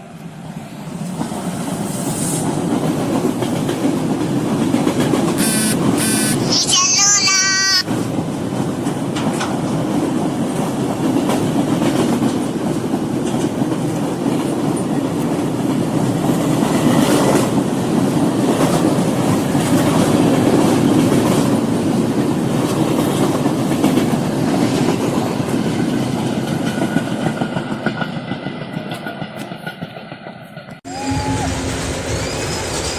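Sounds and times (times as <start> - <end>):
freight train rumble: 0.0 - 6.5, 7.5 - 32.9
train wheels clacking on rail joints: 7.9 - 30.8.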